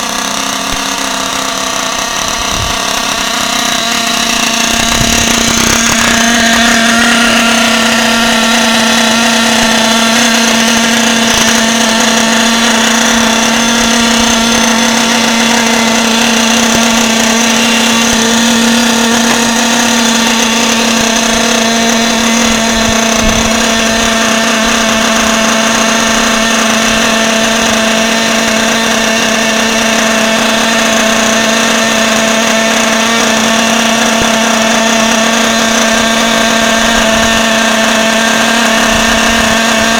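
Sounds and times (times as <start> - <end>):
radio-controlled truck motor running: 0.0 - 39.9.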